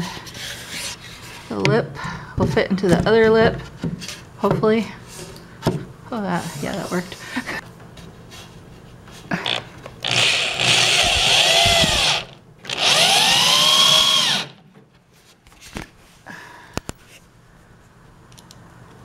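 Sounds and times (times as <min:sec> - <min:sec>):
power drill driving screws: 0:09.4 - 0:14.6.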